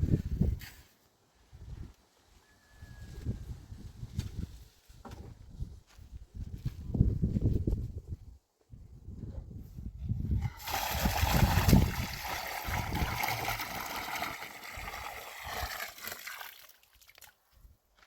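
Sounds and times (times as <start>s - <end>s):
water pouring and sloshing: 10.2s - 17.4s.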